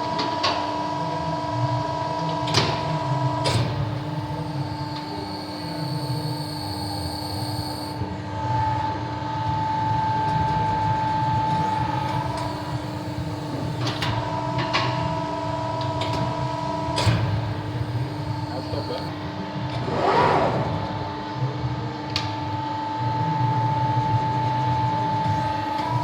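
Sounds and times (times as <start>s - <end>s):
press brake machine hum: 2.2s - 8.1s, 10.2s - 21.4s
held machine tones shifting pitch: 3.9s - 8.0s, 17.2s - 19.1s.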